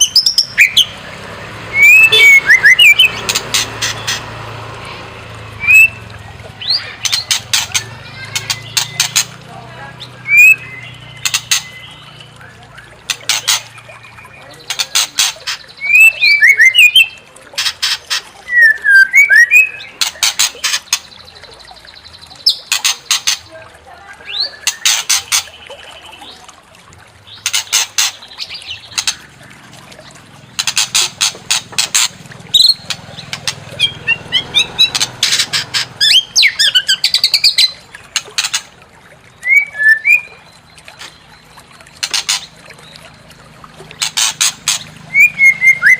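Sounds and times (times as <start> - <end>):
bird whistled notes: 1.7 - 3.1, 5.6 - 6.0, 18.5 - 19.9, 39.4 - 40.4, 45.1 - 45.9
bird harsh chattering: 1.7 - 4.3, 5.6 - 6.0, 6.6 - 21.5, 24.2 - 25.6, 30.4 - 38.7, 43.9 - 45.9.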